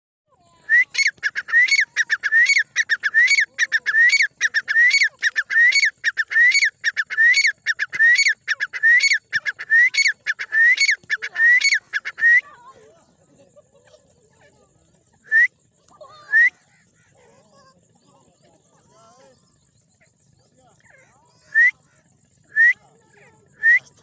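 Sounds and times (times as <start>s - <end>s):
francolin calling: 0.4s - 12.8s, 15.2s - 24.0s.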